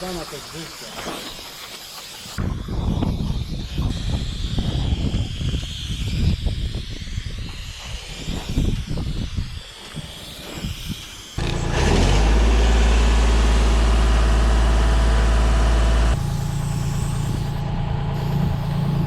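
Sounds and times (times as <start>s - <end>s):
wind buffeting microphone: 2.4s - 11.0s
engine running with deep hum: 11.4s - 19.0s.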